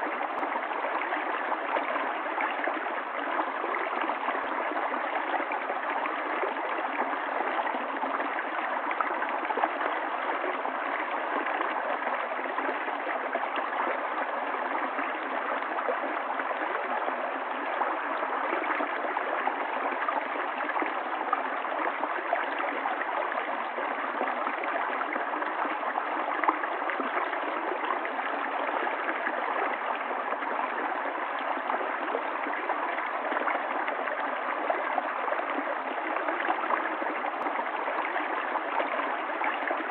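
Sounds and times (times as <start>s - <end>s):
stream water running: 0.0s - 39.9s.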